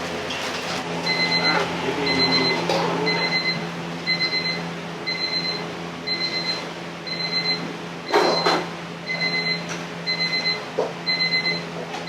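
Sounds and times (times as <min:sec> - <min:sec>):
kitchen timer beeping: 0:01.0 - 0:07.6, 0:09.1 - 0:11.6.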